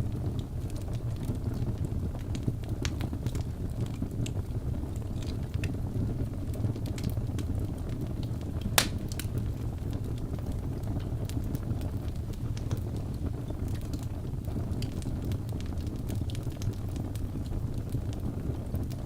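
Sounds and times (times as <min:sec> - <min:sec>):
logs crackling and popping: 0:00.0 - 0:19.0
low rumble of flame: 0:00.0 - 0:19.0.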